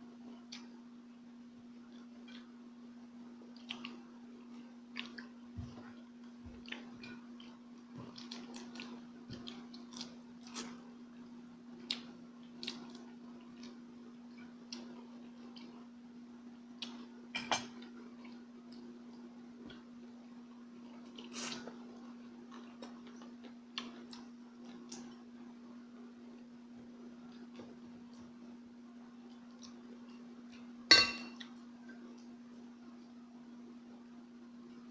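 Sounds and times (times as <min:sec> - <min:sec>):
steady low hum: 0:00.0 - 0:34.9
person chewing and crunching: 0:03.5 - 0:10.8, 0:11.8 - 0:13.8, 0:20.8 - 0:25.2.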